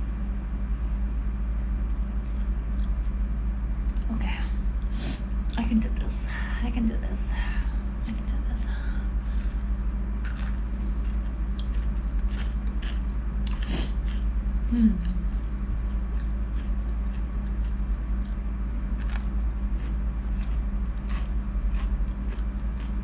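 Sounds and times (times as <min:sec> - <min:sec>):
low electrical hum: 0:00.0 - 0:23.0
person chewing crunchy food: 0:02.2 - 0:03.2, 0:08.6 - 0:23.0
throat hum: 0:10.3 - 0:18.4.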